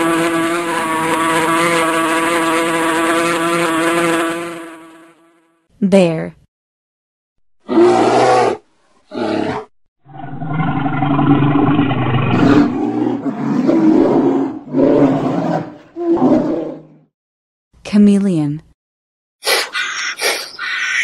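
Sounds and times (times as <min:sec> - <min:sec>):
bear growling: 0:07.6 - 0:17.0.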